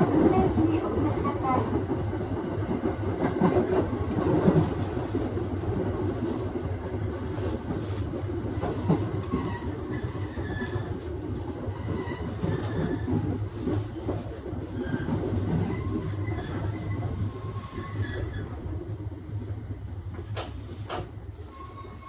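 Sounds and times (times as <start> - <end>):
train hum and wheel-on-rail noise: 0.0 - 22.0
faint high wheel squeal: 9.3 - 11.0, 21.4 - 22.0.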